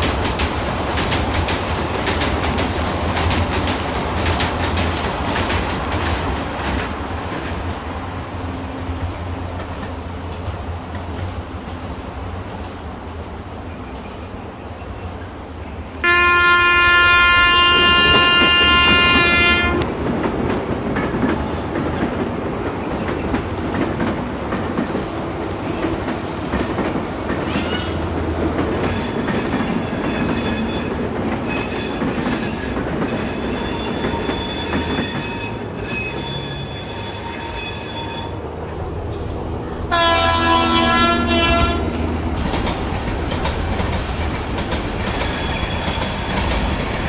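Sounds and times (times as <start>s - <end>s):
train wheels clattering on rails: 0.0s - 15.3s, 16.0s - 47.0s
train horn blast: 16.0s - 20.0s, 39.8s - 42.4s.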